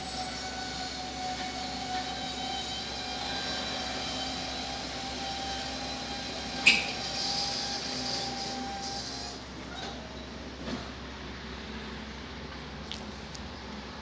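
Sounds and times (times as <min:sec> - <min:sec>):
electric train whine and hum: 0:00.0 - 0:14.0.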